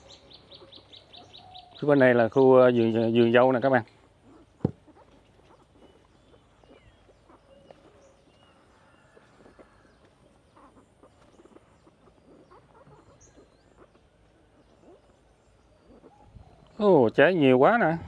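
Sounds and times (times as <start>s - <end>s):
high bird chirps: 0.0s - 18.0s
soft rustling: 3.8s - 16.8s.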